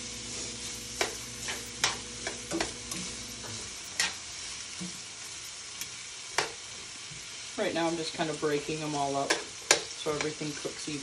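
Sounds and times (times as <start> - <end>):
sausage sizzling in skillet: 0.0 - 11.0
metal tongs clicking on pan: 9.2 - 10.4.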